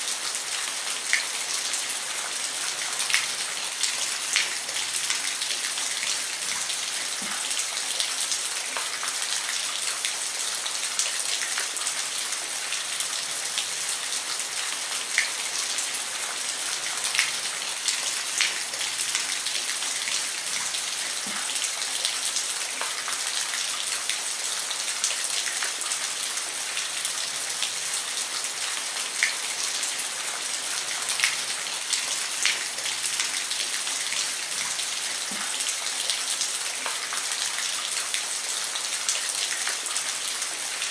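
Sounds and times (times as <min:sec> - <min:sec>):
rain falling on a roof: 0:00.0 - 0:40.9.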